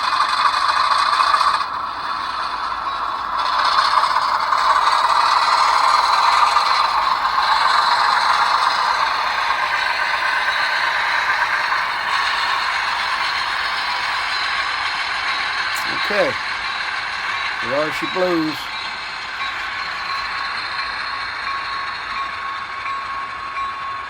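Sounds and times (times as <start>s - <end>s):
diesel engine sound through small speakers: 0.0s - 19.9s.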